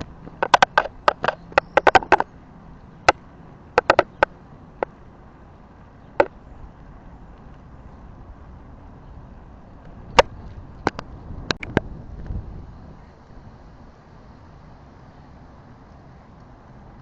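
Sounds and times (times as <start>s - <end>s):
bicycle rattling and clicking: 0.0s - 12.0s
bicycle rolling with low hiss: 0.0s - 17.0s.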